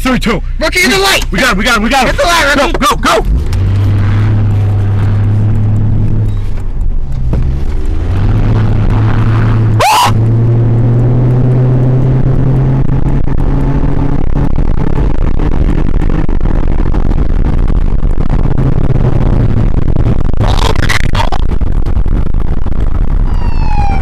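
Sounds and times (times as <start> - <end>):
car engine accelerating: 0.0 - 24.0
short rising whoop: 9.8 - 10.2, 23.2 - 24.0.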